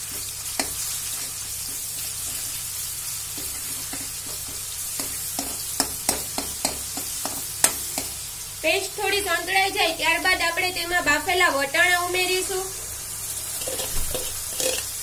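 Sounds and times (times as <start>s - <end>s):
paste sizzling in hot oil: 0.0s - 10.2s, 11.6s - 15.0s
steel ladle scraping pan: 13.4s - 15.0s.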